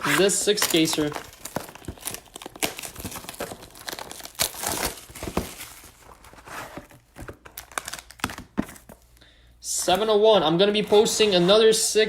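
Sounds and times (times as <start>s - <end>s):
plastic packaging crinkling and tearing: 0.0s - 9.2s.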